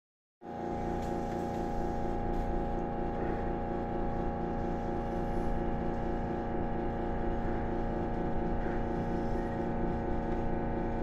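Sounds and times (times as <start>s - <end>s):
train hum inside carriage: 0.4s - 11.0s.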